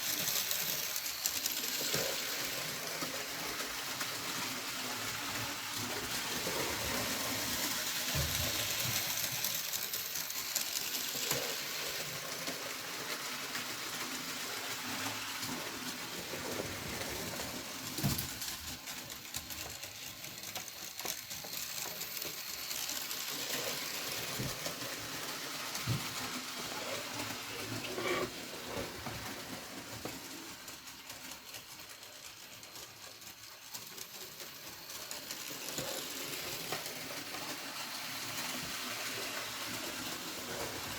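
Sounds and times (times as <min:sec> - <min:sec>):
model train rolling on track: 0:00.0 - 0:40.9.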